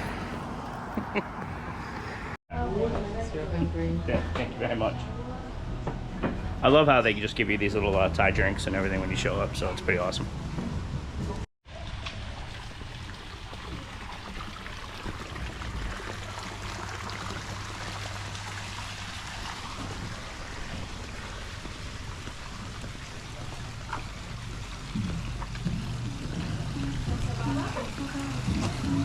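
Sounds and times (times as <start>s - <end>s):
running water: 11.7s - 29.0s.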